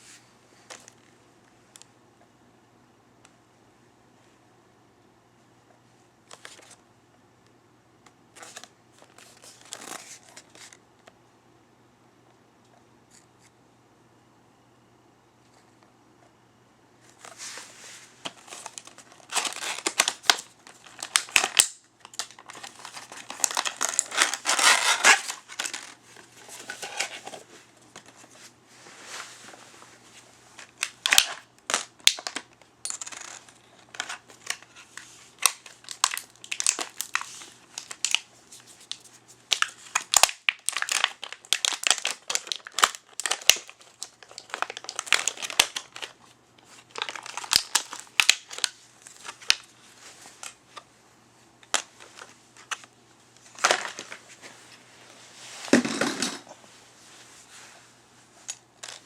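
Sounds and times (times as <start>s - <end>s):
packaging crinkling: 17.2s - 28.4s, 30.5s - 50.6s, 51.6s - 54.5s.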